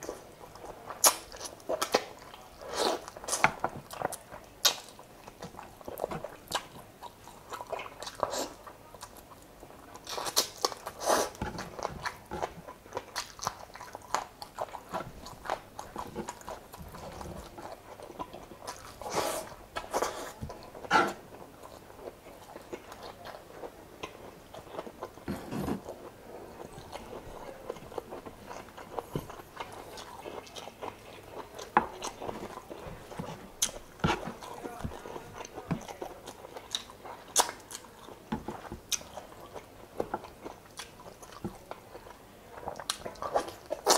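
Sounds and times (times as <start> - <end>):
person chewing and biting: 24.0 - 43.9.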